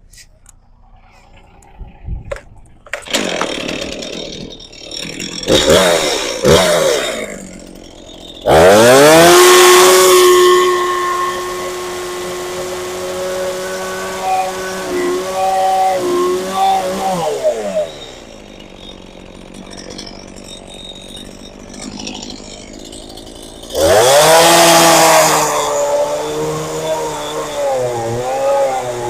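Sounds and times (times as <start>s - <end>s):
chainsaw revving and idling: 2.9s - 29.0s.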